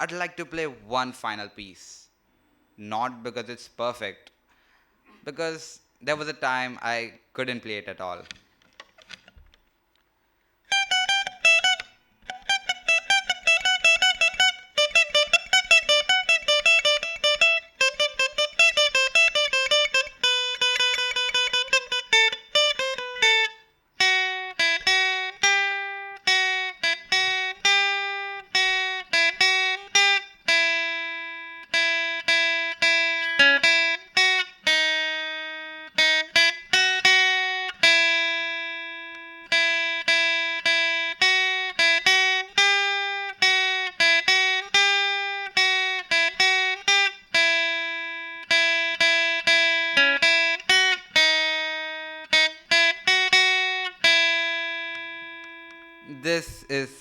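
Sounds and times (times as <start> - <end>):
plucked solo guitar: 10.7 - 57.0.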